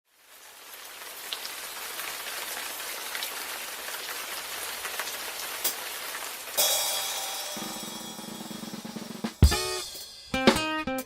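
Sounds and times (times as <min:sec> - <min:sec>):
rain on a hard surface: 0:00.1 - 0:08.7
music: 0:06.6 - 0:11.0.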